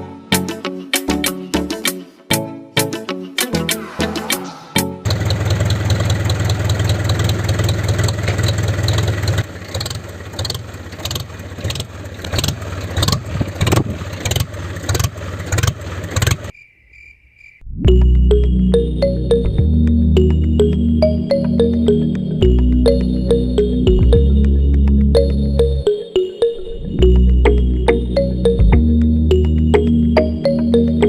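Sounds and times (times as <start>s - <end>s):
small tractor engine running: 5.1s - 16.5s.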